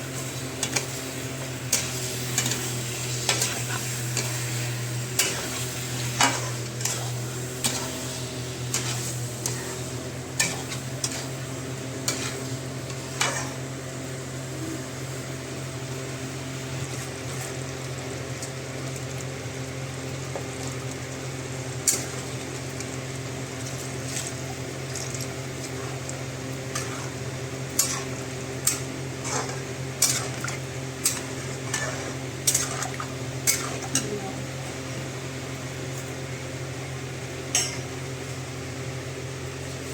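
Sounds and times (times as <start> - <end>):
light sizzling: 0.0 - 39.9
steady low hum: 0.0 - 39.9.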